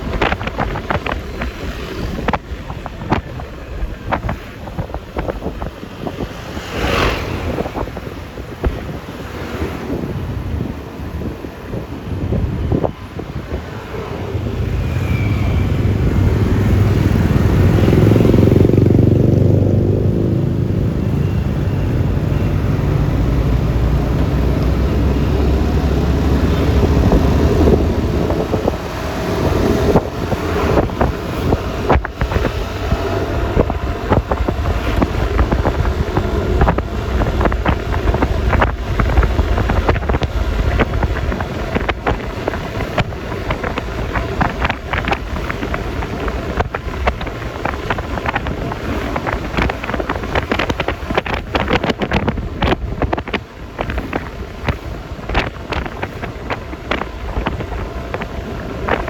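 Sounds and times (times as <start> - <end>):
passing traffic: 0.0 - 59.0
scooter engine: 0.0 - 59.0
wind buffeting microphone: 0.0 - 59.0
tyre noise: 21.9 - 59.0.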